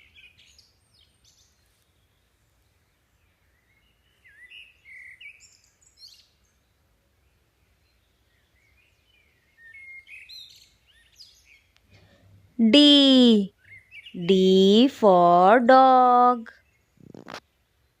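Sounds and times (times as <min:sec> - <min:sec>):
faint bird chirps: 0:00.0 - 0:15.4.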